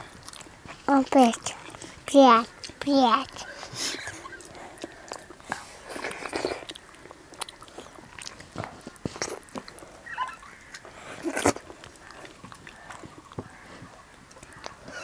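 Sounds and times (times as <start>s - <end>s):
wet chewing: 0.0s - 15.0s
small mouth clicks: 4.4s - 9.9s
lip smacks: 4.4s - 10.0s.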